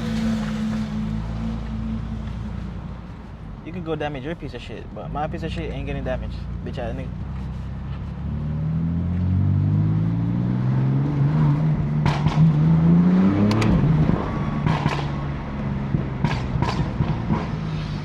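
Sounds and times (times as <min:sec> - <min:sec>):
car engine accelerating: 0:00.0 - 0:03.2, 0:06.0 - 0:18.0
exhaust cracks: 0:11.3 - 0:18.0.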